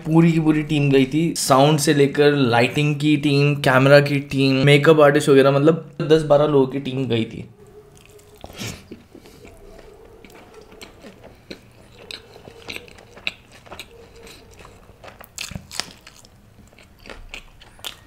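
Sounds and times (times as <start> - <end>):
wet chewing with crunchy bites: 7.6 - 18.0.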